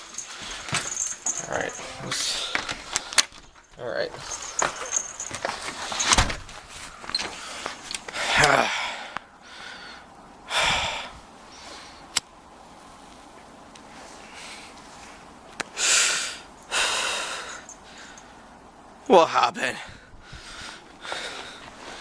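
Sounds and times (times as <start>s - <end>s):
person breathing heavily and sighing: 0.1s - 3.4s, 7.3s - 12.0s, 15.8s - 18.3s, 19.7s - 22.0s
person grunting: 8.2s - 8.9s
sharp clicks: 12.1s - 12.3s.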